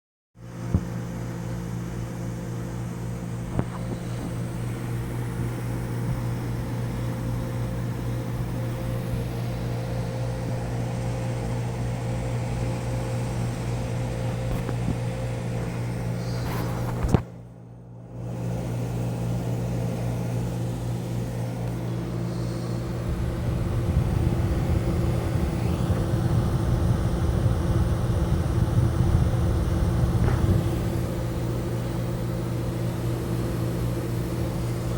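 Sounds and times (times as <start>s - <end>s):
air conditioner hum: 0.4s - 34.9s
deep rumble: 22.8s - 32.3s.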